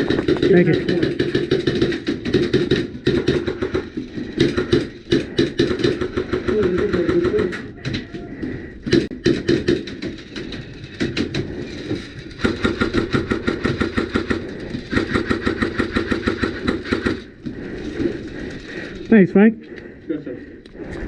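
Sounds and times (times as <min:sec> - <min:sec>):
airsoft rifle full-auto bursts: 0:12.4 - 0:17.3.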